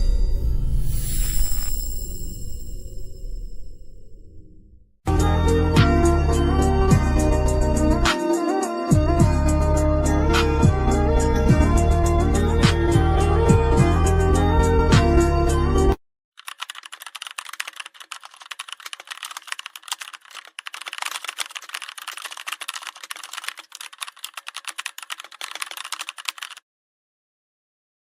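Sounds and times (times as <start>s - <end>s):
music: 5.1s - 16.0s
rapid keyboard clicking: 16.4s - 26.6s.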